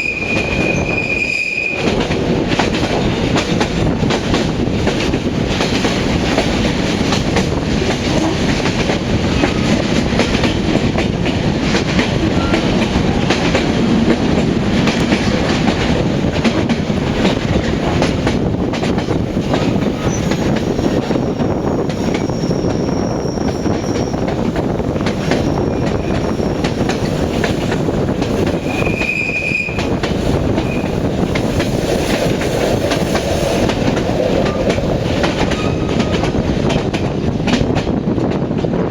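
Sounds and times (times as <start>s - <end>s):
high wheel squeal: 0.0s - 1.9s, 19.9s - 24.4s, 25.2s - 27.2s, 28.6s - 30.0s, 30.6s - 31.1s, 35.4s - 36.2s
train wheels rumbling on rails: 0.0s - 38.9s.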